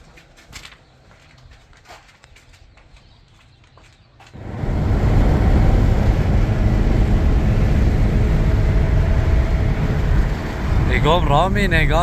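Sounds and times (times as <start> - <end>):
vehicle engine and road noise: 4.3 - 12.0.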